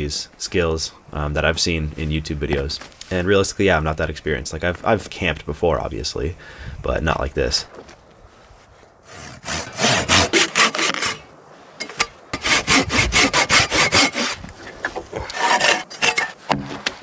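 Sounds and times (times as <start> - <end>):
hand saw cutting wood: 9.0 - 16.4.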